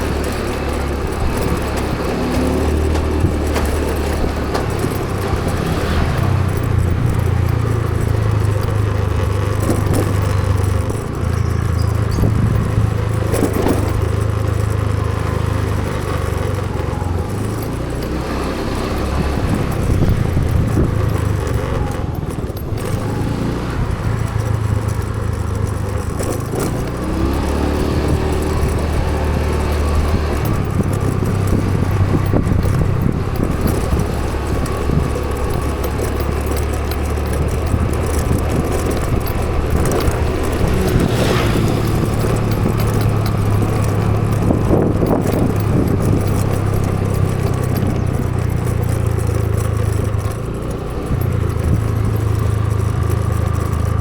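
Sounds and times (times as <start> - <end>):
road noise: 0.0 - 54.0
vehicle engine drone: 0.0 - 54.0.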